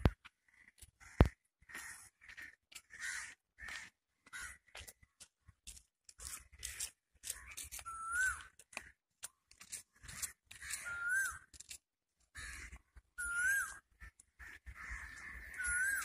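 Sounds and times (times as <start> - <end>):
birds making harsh calls: 6.3 - 8.9, 9.7 - 11.8, 12.4 - 16.0.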